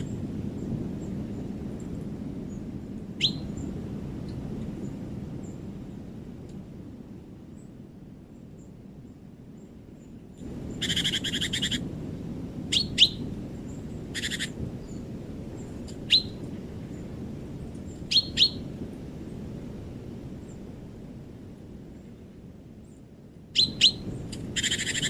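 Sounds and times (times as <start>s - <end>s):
low background hiss: 0.0s - 25.0s
bird rattling trills: 10.7s - 11.8s, 14.1s - 15.0s, 23.6s - 25.0s.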